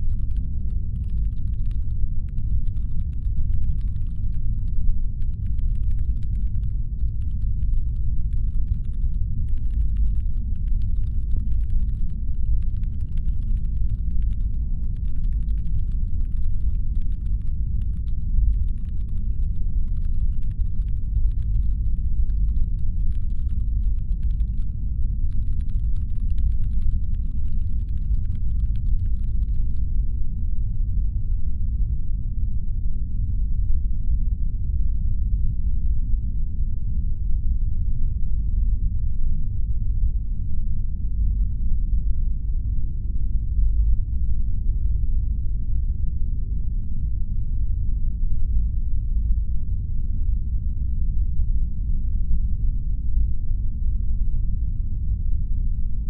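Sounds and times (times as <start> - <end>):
faint crackle of fine ticks: 0.0 - 29.9
deep brown-noise rumble: 0.0 - 56.0.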